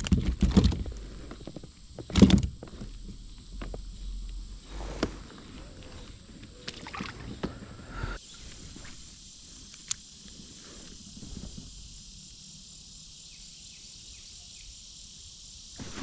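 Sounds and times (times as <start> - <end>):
low rumbling handling noise: 0.0 - 8.8
high-pitched insect chorus: 0.0 - 16.0.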